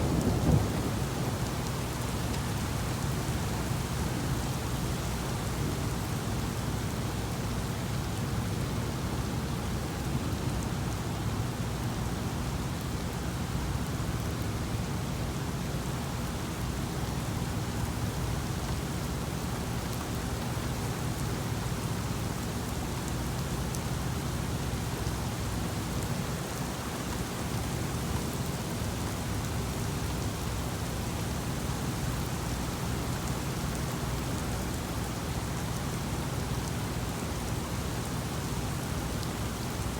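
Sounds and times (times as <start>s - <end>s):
low thunder rumble: 0.0s - 3.1s
heavy rain: 0.0s - 39.9s.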